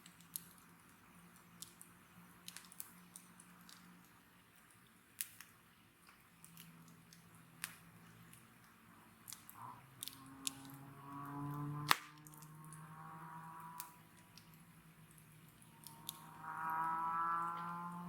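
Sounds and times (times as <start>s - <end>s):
wood fire crackling: 0.0s - 18.0s
sharp fire pops: 11.8s - 12.8s.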